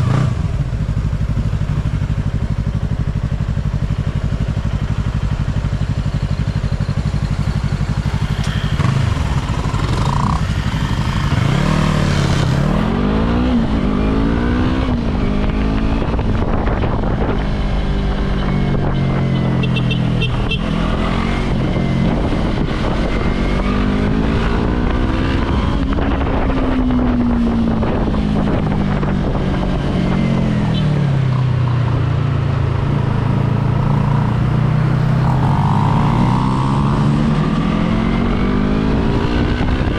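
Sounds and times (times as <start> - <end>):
motorcycle engine revving: 0.0 - 39.9
wind rushing over microphone: 8.8 - 19.4, 20.6 - 39.9.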